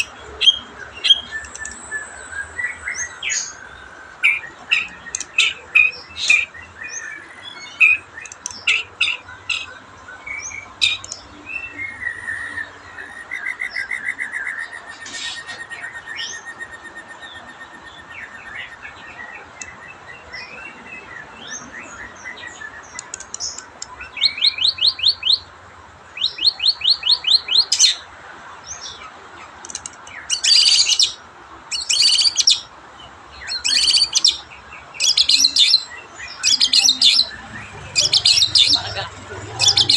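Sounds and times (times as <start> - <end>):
bird singing whistles and chirps: 0.4 - 3.7, 10.3 - 20.7.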